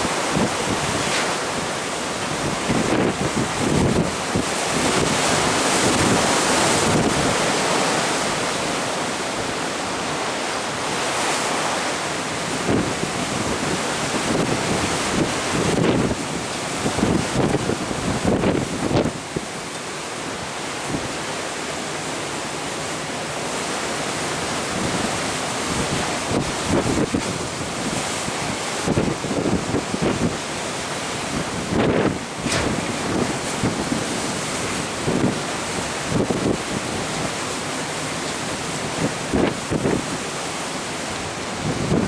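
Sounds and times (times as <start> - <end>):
wind buffeting microphone: 0.0 - 8.9, 12.5 - 19.6, 24.6 - 37.5, 38.5 - 40.3, 41.1 - 42.0
rush of wind: 0.0 - 42.0
sea wash: 0.0 - 42.0.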